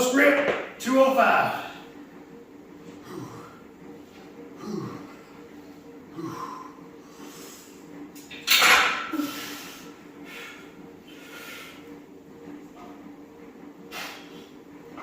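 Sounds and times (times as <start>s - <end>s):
man grunting with effort: 4.6s - 5.2s
forceful breathing: 9.1s - 12.0s.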